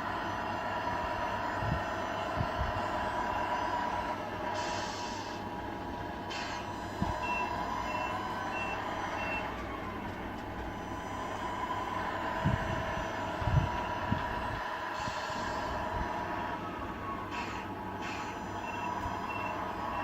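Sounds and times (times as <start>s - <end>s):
toy truck engine sound: 0.0s - 20.0s
reversing beeper: 6.3s - 14.3s, 14.9s - 20.0s.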